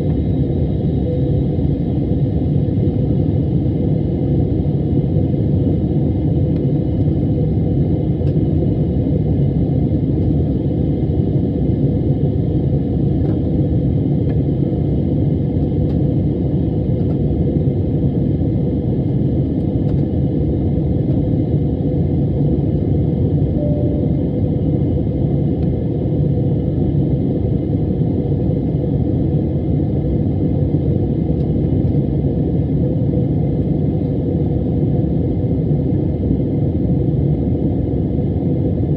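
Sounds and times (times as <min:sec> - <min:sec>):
jet airliner cabin roar: 0:00.0 - 0:38.9
faint steady whine: 0:23.4 - 0:25.0.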